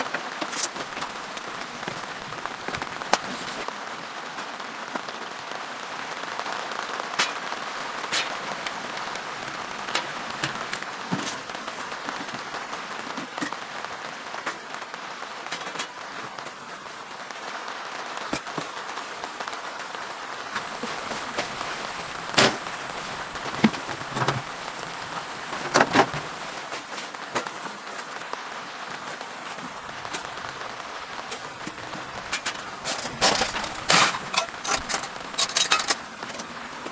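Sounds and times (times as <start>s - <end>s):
rain pattering on a tarp: 0.0s - 36.9s
sharp pops and knocks: 22.2s - 24.9s.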